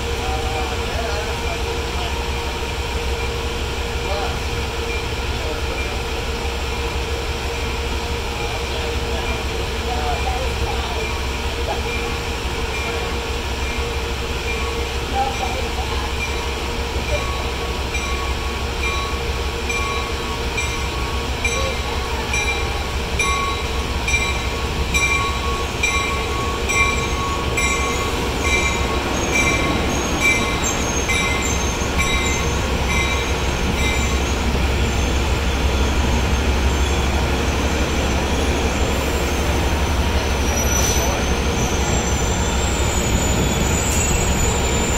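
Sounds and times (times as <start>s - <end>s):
train bell ringing: 0.0s - 7.0s, 7.6s - 38.8s
train rolling with low rumble: 0.0s - 44.9s
wheel squeal: 40.4s - 44.9s.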